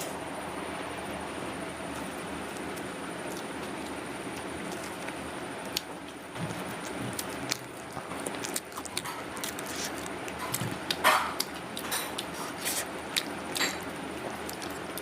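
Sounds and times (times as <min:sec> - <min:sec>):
crunchy bite: 0:06.5 - 0:15.0
mouth chewing with wet smacks: 0:06.5 - 0:15.0.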